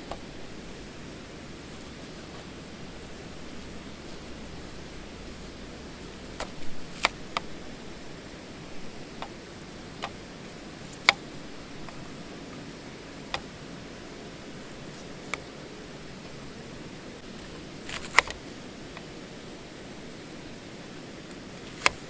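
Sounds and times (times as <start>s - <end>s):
steady hiss: 0.0s - 22.0s
sharp clicks and pops: 6.0s - 7.6s, 17.2s - 19.1s.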